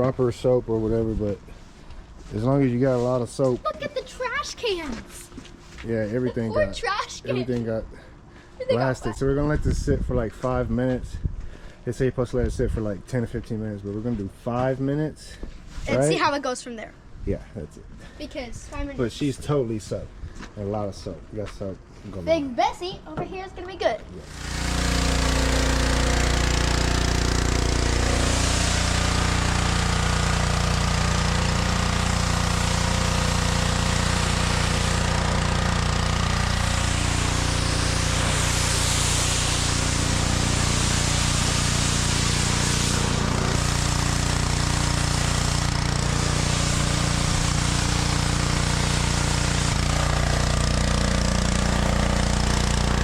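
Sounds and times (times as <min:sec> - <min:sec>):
pressure washer engine running: 0:03.6 - 0:05.1, 0:24.2 - 0:53.0.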